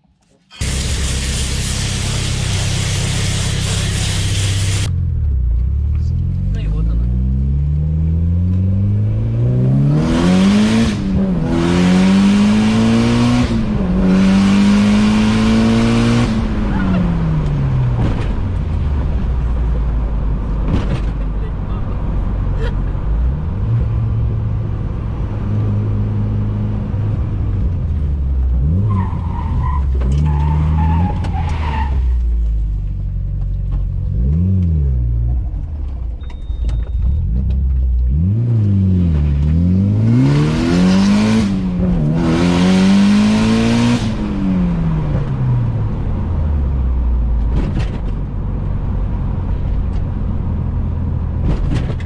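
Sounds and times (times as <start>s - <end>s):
loud rushing noise: 0.6s - 4.9s
car engine revving: 0.6s - 21.1s, 37.1s - 52.0s.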